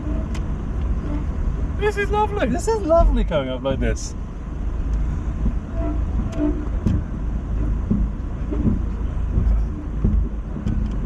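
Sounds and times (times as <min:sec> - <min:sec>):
car engine under load: 0:00.0 - 0:11.0
car knocking over rocks: 0:06.8 - 0:11.0.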